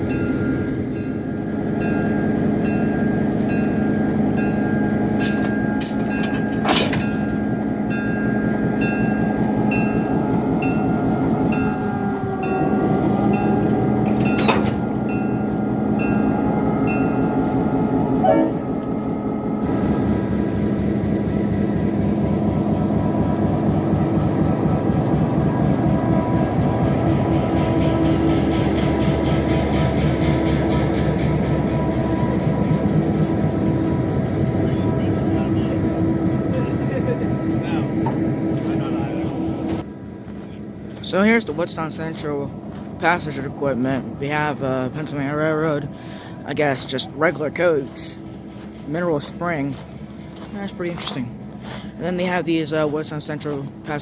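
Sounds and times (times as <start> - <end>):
bell ringing: 0.0 - 19.6
diesel locomotive running: 0.0 - 54.0
sharp metallic clanks: 1.8 - 8.3, 13.4 - 17.3.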